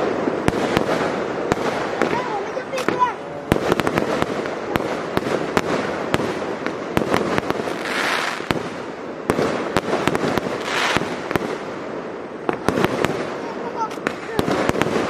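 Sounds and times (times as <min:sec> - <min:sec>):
fireworks bangs: 0:00.0 - 0:15.0
fireworks hissing: 0:00.0 - 0:15.0.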